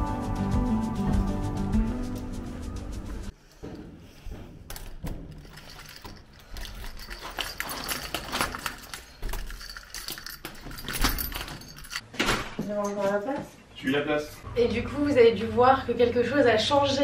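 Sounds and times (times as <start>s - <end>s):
keys jangling in a lock: 4.7s - 12.1s.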